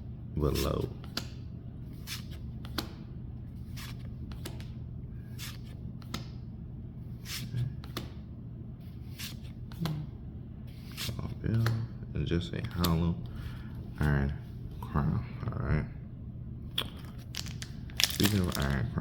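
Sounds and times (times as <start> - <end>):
steady low hum: 0.0 - 19.0
trading cards flipped by hand: 3.7 - 4.7, 16.7 - 18.8.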